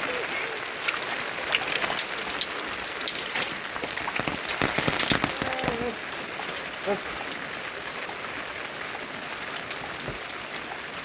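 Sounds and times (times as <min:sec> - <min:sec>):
steady rain falling: 0:00.0 - 0:11.0
drops ticking against a surface: 0:00.8 - 0:07.0.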